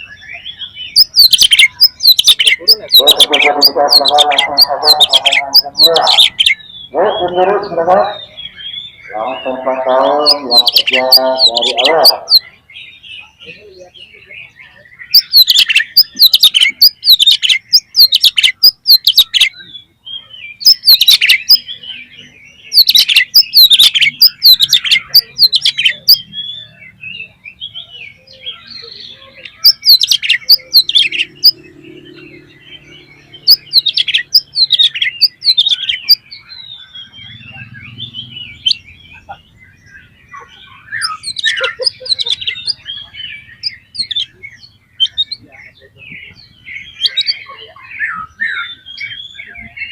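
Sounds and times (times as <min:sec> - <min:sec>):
bird singing whistled phrases: 0:00.0 - 0:07.4, 0:08.1 - 0:31.6, 0:32.5 - 0:49.9
soft bird twittering: 0:00.0 - 0:49.9.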